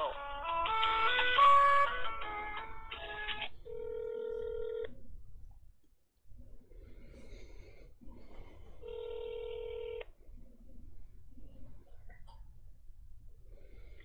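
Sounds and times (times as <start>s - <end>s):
hold music over telephone: 0.0s - 4.9s
telephone ringback tone: 0.7s - 4.9s, 8.8s - 10.0s.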